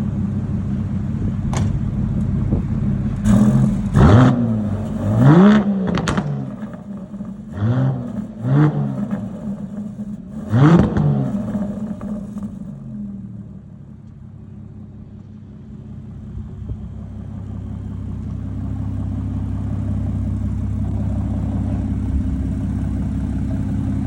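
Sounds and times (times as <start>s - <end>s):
car engine idling: 0.0s - 24.0s
engine revving: 2.5s - 13.4s.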